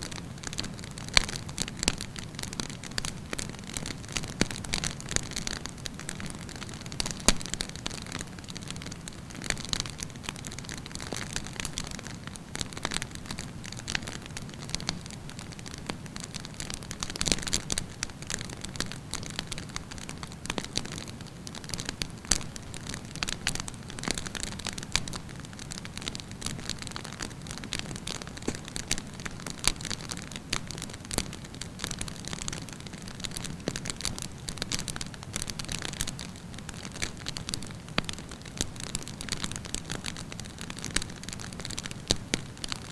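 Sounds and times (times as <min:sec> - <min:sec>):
campfire crackling: 0:00.0 - 0:42.9.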